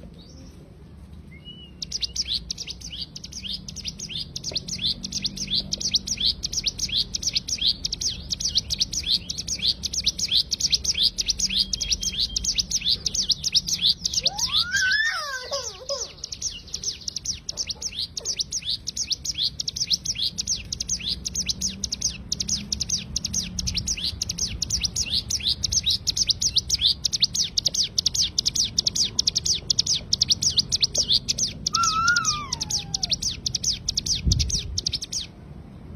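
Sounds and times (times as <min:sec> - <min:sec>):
bird chirping rapidly: 0:01.4 - 0:35.4
bird whistled falling phrase: 0:14.2 - 0:15.4, 0:31.7 - 0:33.1.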